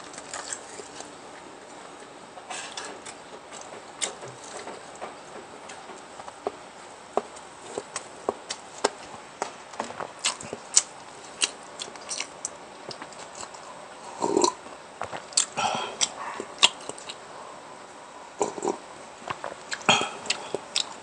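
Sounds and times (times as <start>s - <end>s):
person chewing and biting: 9.8s - 13.7s, 14.3s - 17.2s, 18.4s - 20.9s.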